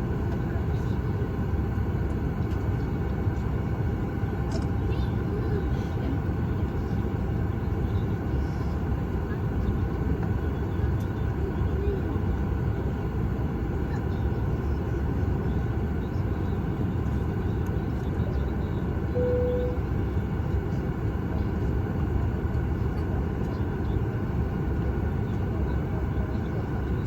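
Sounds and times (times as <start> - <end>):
airplane cabin rumble: 0.0 - 27.0
short steady tone: 19.1 - 20.0.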